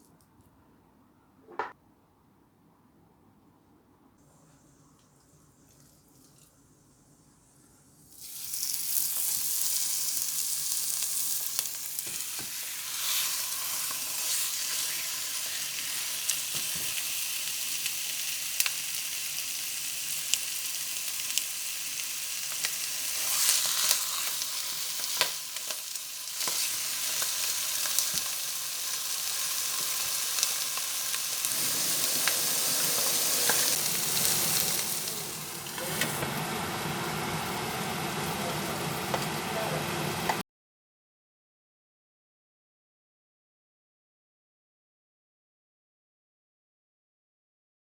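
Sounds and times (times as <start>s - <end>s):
food sizzling in a frying pan: 8.0s - 40.4s.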